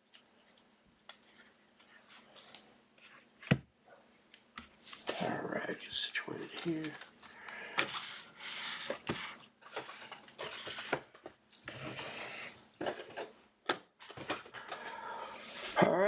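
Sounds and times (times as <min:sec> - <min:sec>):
boxes rubbing and scraping on table: 0:07.8 - 0:13.2.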